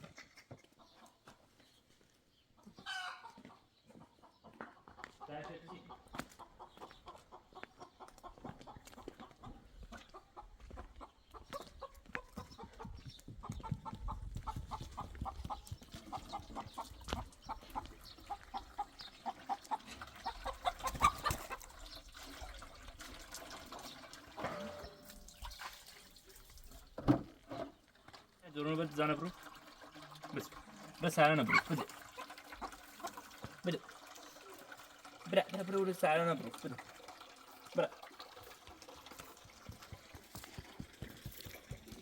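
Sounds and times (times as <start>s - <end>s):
chickens clucking: 0.0s - 25.9s, 29.2s - 35.0s.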